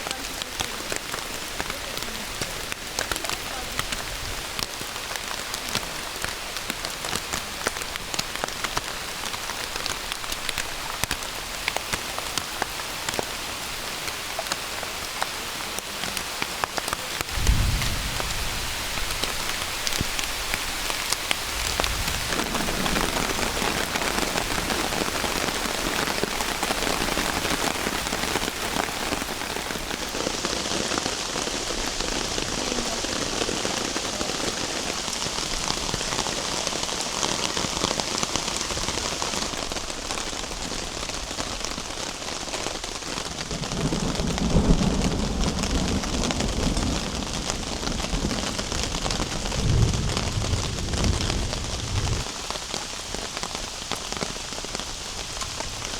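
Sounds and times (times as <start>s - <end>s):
heavy rain falling: 0.0s - 55.9s
low rumbles: 17.3s - 20.2s.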